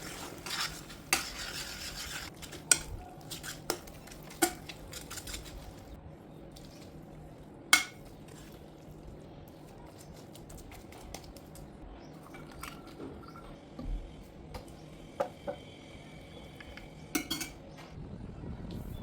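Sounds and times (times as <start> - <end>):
metal utensil clinking on cookware: 0.5 - 5.7, 16.7 - 17.6.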